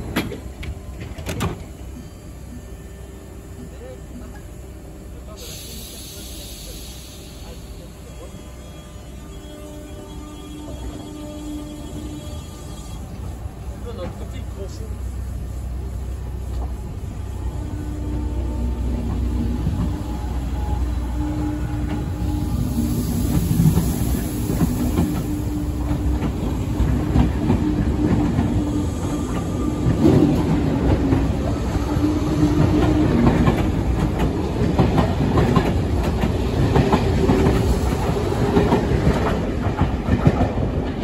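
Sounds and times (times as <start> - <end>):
train rumble and motor hum: 0.0 - 41.0
train wheels clattering over rail joints: 32.4 - 41.0.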